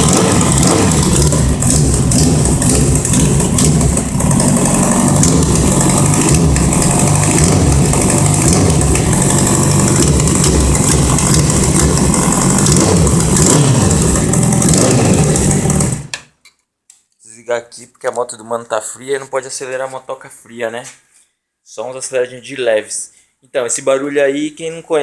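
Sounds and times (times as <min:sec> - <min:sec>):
motorcycle engine revving: 0:00.0 - 0:16.2.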